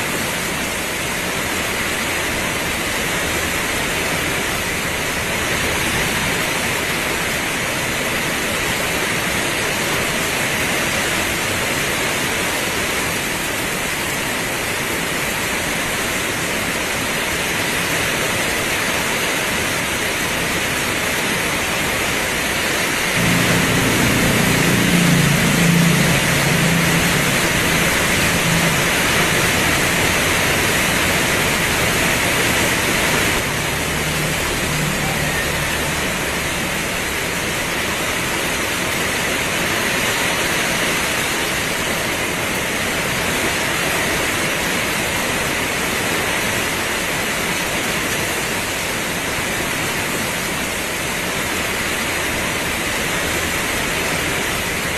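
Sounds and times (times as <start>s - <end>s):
heavy rain pouring: 0.0s - 54.9s
low rumble: 23.2s - 38.6s.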